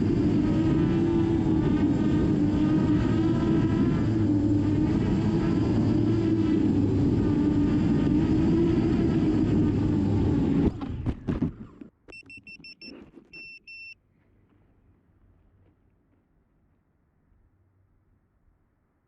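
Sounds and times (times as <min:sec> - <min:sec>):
drone propellers whirring: 0:00.0 - 0:11.8
short high electronic beeps: 0:12.1 - 0:14.0.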